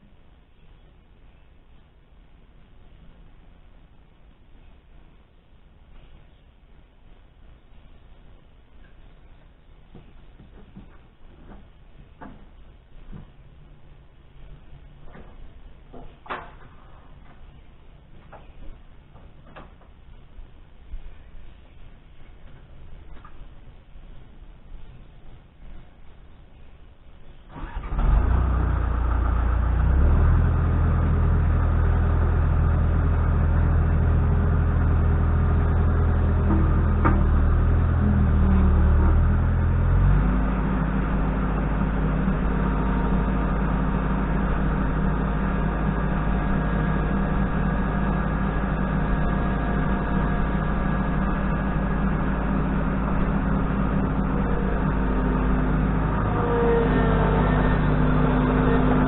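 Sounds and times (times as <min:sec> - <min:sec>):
engine starting and idling: 0:27.5 - 0:59.0.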